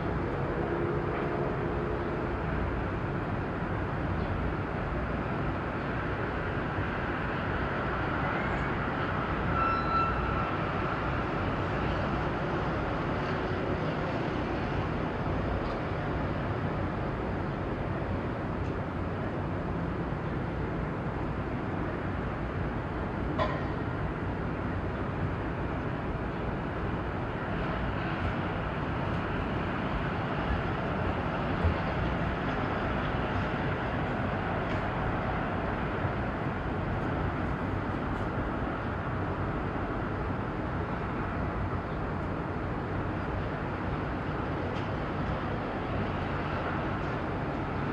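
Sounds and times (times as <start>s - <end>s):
distant engines and traffic: 0.0s - 47.9s.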